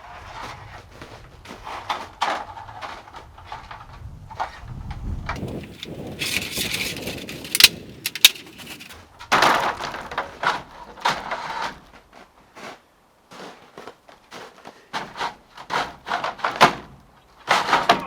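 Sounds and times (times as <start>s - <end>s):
ladder scraping and clattering: 0.0s - 18.0s
ladder knocks: 15.0s - 18.0s.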